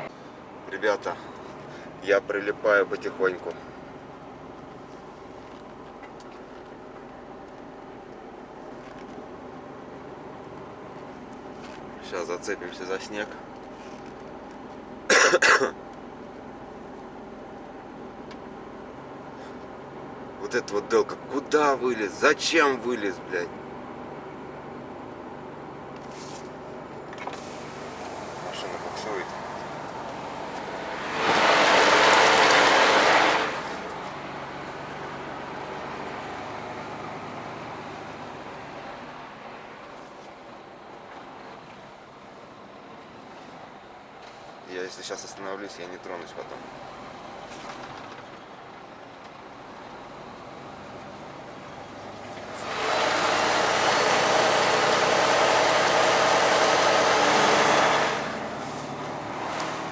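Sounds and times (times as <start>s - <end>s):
truck engine running: 0.0s - 59.9s
loud hiss: 27.4s - 28.9s.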